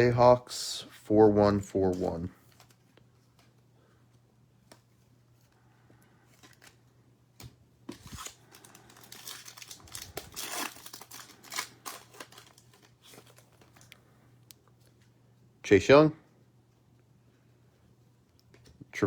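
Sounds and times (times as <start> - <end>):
foil wrapper tearing and crinkling: 7.9 - 13.9.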